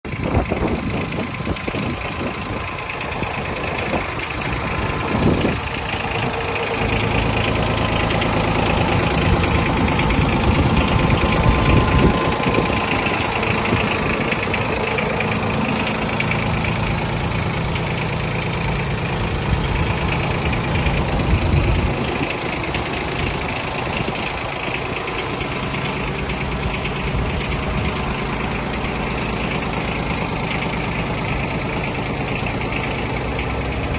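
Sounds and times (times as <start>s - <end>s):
diesel tractor engine clattering: 0.0s - 33.9s.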